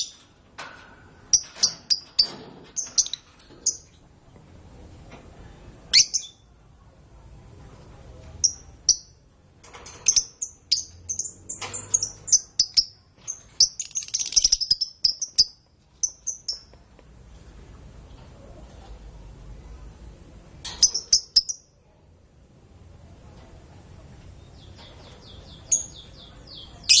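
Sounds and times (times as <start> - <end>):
canary singing: 5.9 - 6.5, 10.2 - 16.8, 20.8 - 21.7, 24.5 - 27.0.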